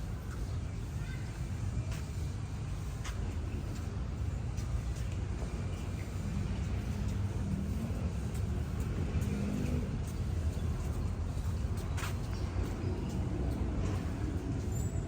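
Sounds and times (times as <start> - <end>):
motor vehicle engine rumbling: 3.4 - 15.0.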